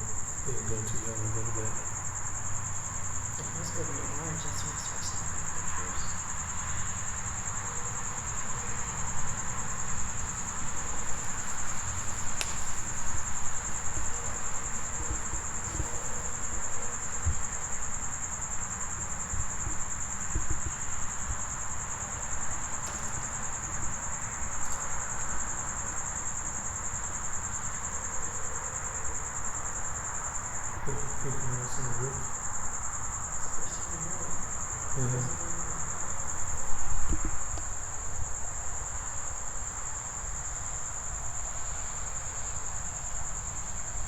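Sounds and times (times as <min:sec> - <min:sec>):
crickets trilling: 0:00.0 - 0:44.0.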